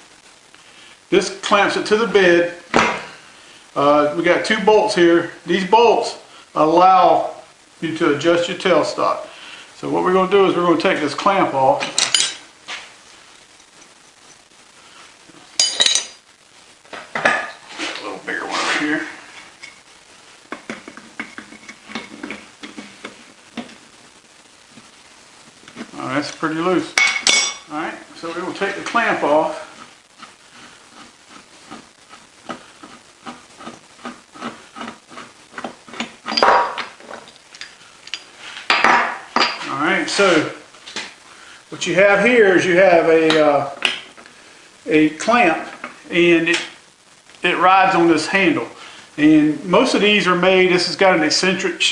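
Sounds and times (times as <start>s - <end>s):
metal tools clinking: 12.0s - 12.4s, 15.6s - 16.2s.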